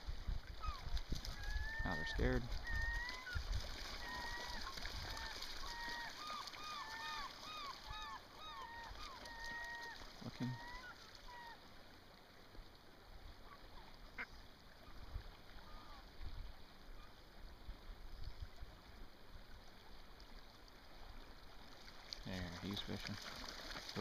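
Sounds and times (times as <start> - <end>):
wind rumble on microphone: 0.0 - 3.8.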